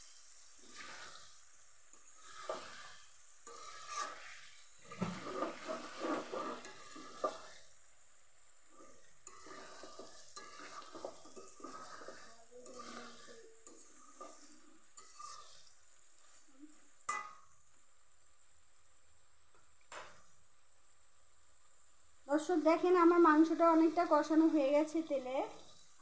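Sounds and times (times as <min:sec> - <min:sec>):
metal spatula scraping pan: 0:00.0 - 0:07.8, 0:08.7 - 0:16.5
chicken sizzling in oil: 0:00.0 - 0:18.1.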